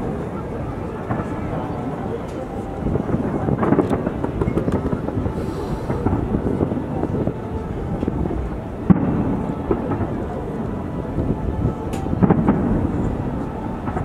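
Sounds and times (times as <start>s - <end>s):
fireworks crackling and booming: 0.0s - 14.0s
sharp firework bang: 12.0s - 13.1s.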